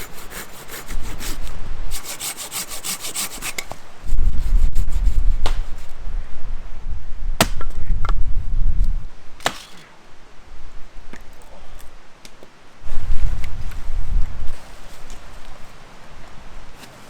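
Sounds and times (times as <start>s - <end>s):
wind rumble on microphone: 0.0s - 2.2s, 3.8s - 9.4s, 12.8s - 16.9s
axe chopping firewood: 5.4s - 5.7s, 7.4s - 8.2s, 9.4s - 9.8s.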